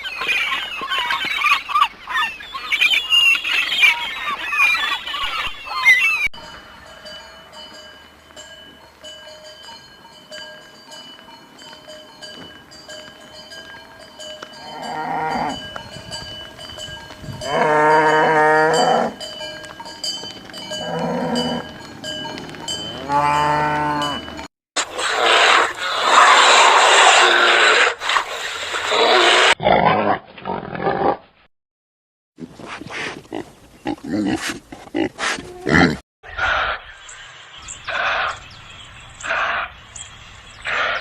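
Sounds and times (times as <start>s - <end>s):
cattle mooing: 14.6s - 15.7s, 17.4s - 19.2s, 20.7s - 21.7s, 22.4s - 24.4s
rough noisy animal sound: 17.2s - 31.4s, 32.6s - 41.0s.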